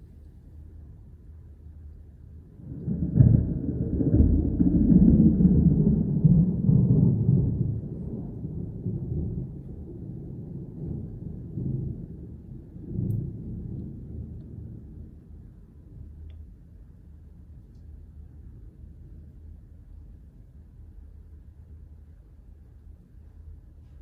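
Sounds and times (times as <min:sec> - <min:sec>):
thunder rumbling: 0:02.6 - 0:16.0.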